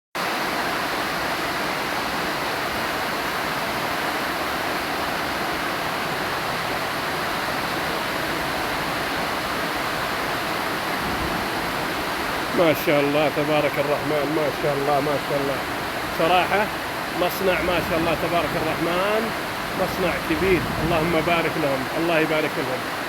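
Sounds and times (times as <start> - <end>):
heavy rain falling: 0.2 - 23.0.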